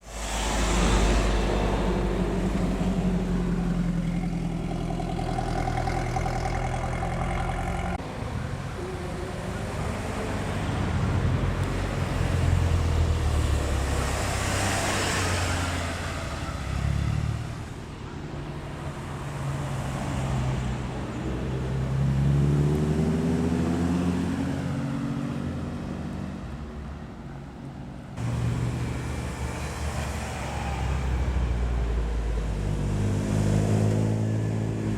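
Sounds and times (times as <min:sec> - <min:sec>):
car engine accelerating: 0:00.0 - 0:08.0, 0:19.7 - 0:26.3
cars driving past: 0:00.0 - 0:34.9.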